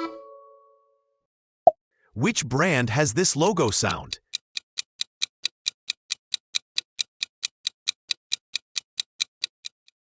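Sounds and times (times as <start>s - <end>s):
clock-like timer ticking: 2.6s - 10.0s.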